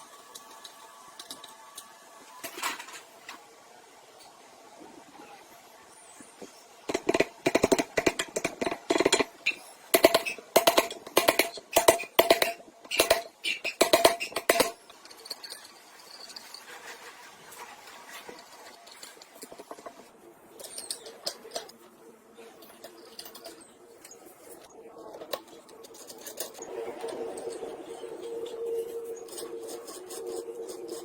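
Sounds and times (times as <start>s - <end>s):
hammer striking metal: 6.9s - 14.8s.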